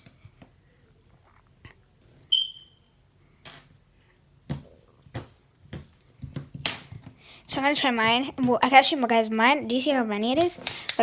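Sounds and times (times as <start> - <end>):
short high beep: 2.3 - 2.8.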